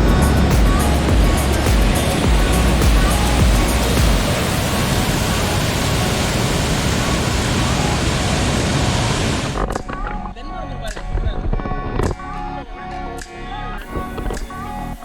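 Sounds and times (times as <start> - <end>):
steady rushing noise: 0.0 - 9.9.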